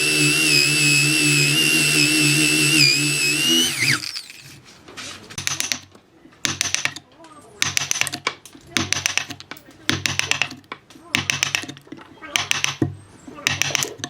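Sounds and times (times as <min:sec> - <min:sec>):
power tool whining: 0:00.0 - 0:04.6.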